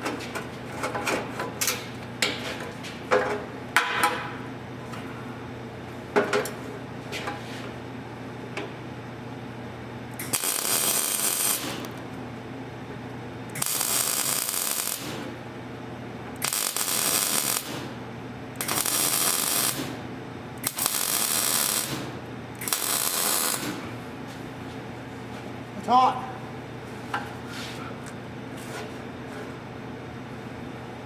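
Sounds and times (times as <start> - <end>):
steady low hum: 0.0 - 31.0
welder sizzling hiss: 10.2 - 11.8, 13.6 - 15.3, 16.4 - 17.9, 18.6 - 19.9, 20.6 - 23.8.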